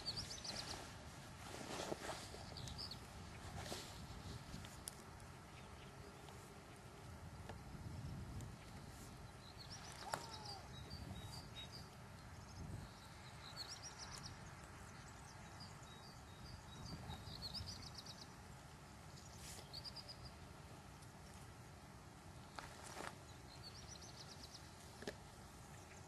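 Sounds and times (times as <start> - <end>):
songbird trilling: 9.4 - 11.9.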